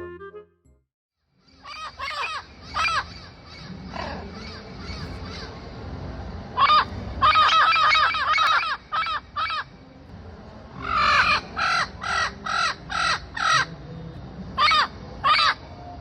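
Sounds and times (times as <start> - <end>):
bird harsh calls: 1.4 - 5.7, 6.6 - 9.7, 10.8 - 13.7, 14.6 - 15.6.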